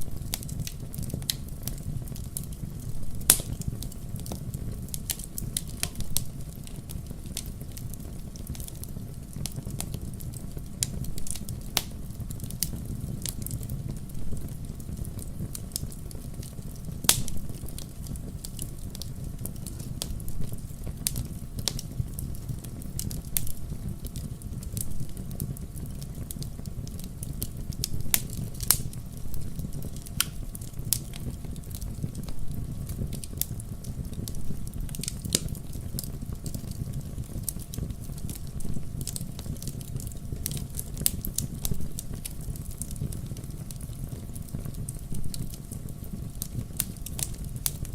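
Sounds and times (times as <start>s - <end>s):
low rumble of burning fire: 0.0s - 47.9s
wood fire crackling: 0.0s - 47.9s.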